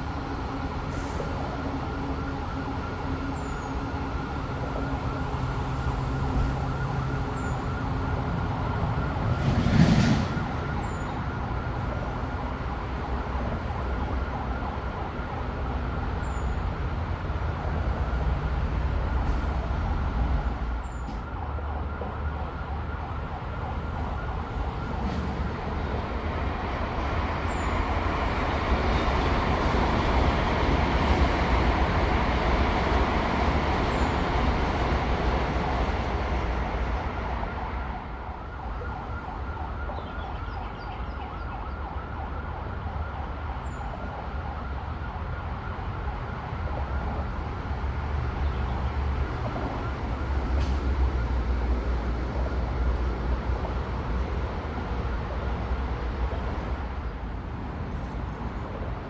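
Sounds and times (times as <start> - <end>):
electric train rushing past: 16.7 - 21.4, 23.4 - 38.2.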